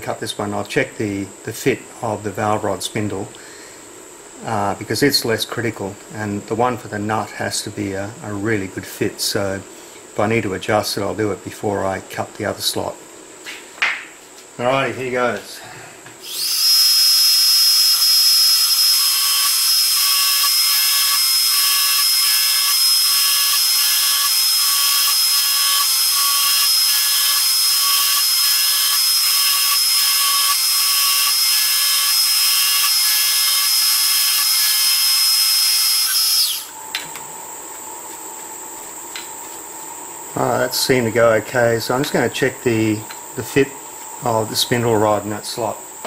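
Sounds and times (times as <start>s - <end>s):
milling machine spindle whine: 16.2s - 46.0s.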